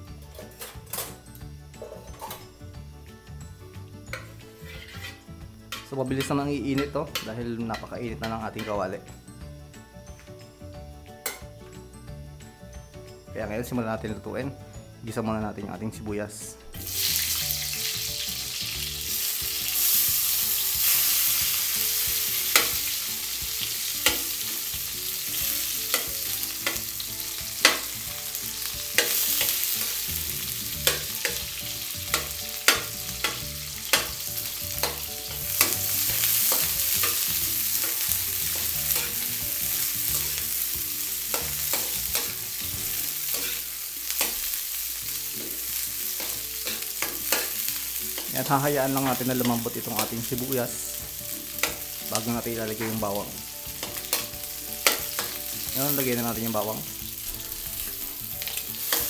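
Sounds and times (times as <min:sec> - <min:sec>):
onions sizzling in hot oil: 0:02.8 - 0:11.6, 0:16.8 - 0:59.0
metal ladle scraping a pan: 0:04.1 - 0:07.9, 0:30.8 - 0:40.5, 0:41.3 - 0:44.5.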